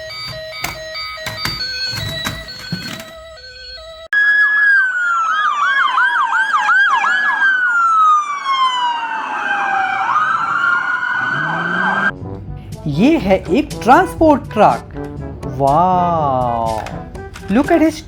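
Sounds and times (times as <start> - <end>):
music: 0.0 - 4.1, 12.1 - 18.0
electronic police siren: 0.0 - 12.2.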